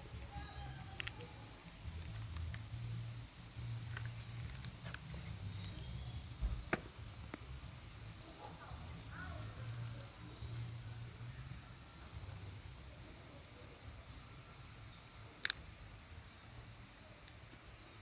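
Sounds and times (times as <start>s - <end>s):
high insect-like drone: 0.0s - 18.0s
sharp clicks: 15.4s - 15.7s.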